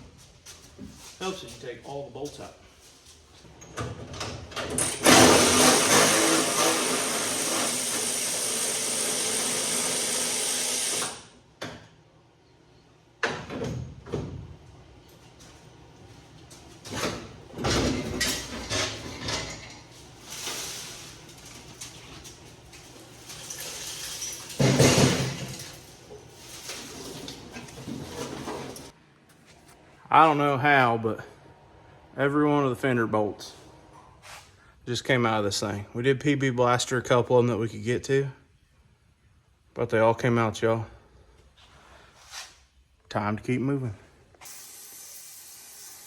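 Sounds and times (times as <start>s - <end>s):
pneumatic tool running: 4.8s - 11.4s, 44.4s - 46.0s
metal clanks and knocks: 20.6s - 25.9s.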